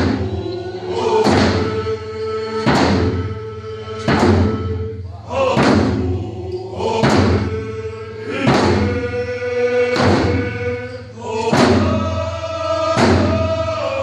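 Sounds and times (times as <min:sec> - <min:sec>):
group singing chanted notes: 0:00.0 - 0:14.0
hand drums on a slow beat: 0:01.2 - 0:04.9, 0:05.6 - 0:06.2, 0:07.0 - 0:07.7, 0:08.3 - 0:09.1, 0:09.8 - 0:10.8, 0:11.5 - 0:12.2, 0:12.8 - 0:13.7.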